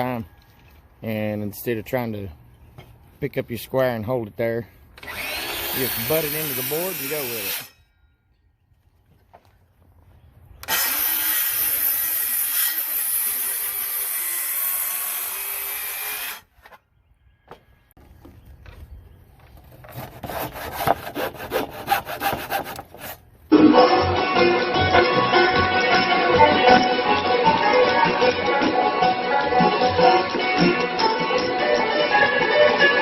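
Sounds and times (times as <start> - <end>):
quick sawing strokes: 5.0 - 7.8, 19.9 - 23.2
saw cutting wood: 5.0 - 7.8, 10.6 - 16.5, 19.8 - 23.2
music: 23.5 - 33.0.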